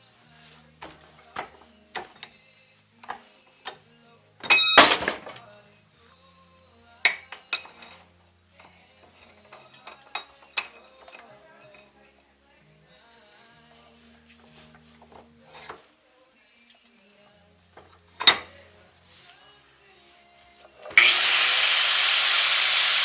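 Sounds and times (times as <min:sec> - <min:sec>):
metal tools clinking: 0:04.4 - 0:05.4, 0:07.1 - 0:12.1, 0:17.8 - 0:18.6
ringing metal clang: 0:04.4 - 0:05.4.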